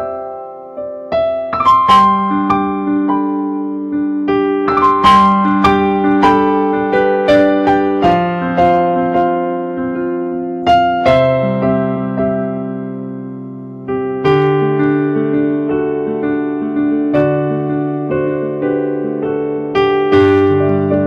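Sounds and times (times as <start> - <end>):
solo piano music: 0.0 - 21.0.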